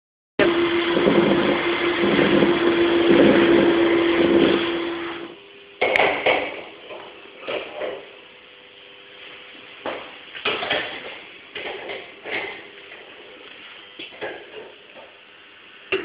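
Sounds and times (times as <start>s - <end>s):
lathe humming and cutting: 0.4s - 5.4s.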